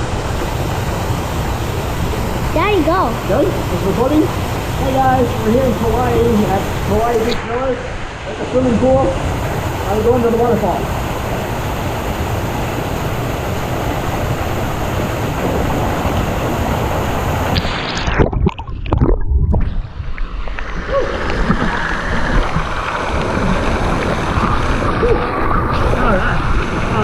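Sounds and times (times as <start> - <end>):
waterfall splashing: 0.0 - 18.2.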